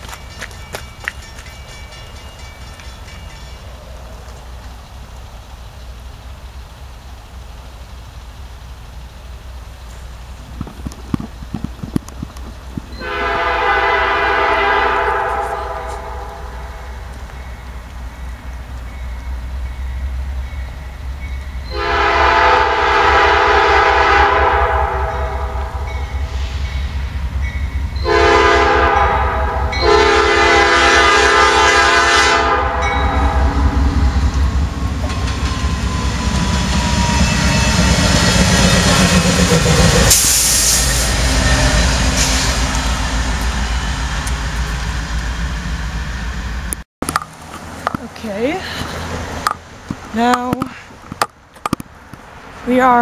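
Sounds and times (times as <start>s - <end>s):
locomotive rumbling past: 0.0s - 53.0s
locomotive horn blasts: 13.0s - 17.0s, 21.7s - 26.6s, 28.0s - 33.8s.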